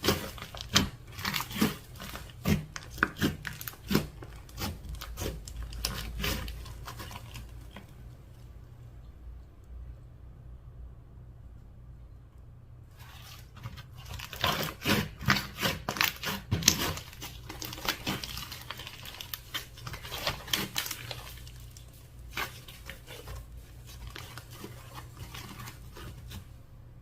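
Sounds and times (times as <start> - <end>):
slime crackling and popping: 0.0 - 7.8, 13.9 - 26.4.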